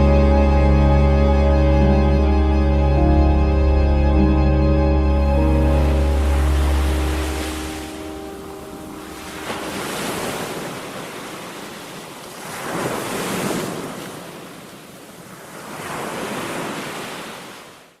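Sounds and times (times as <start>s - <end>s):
ocean waves breaking on beach: 5.7s - 18.0s.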